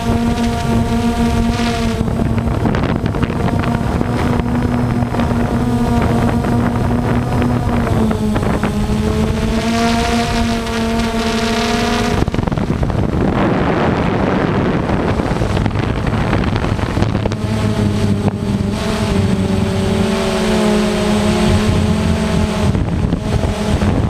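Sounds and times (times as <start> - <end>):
motor humming: 0.0 - 24.0
wind noise on microphone: 0.0 - 24.0.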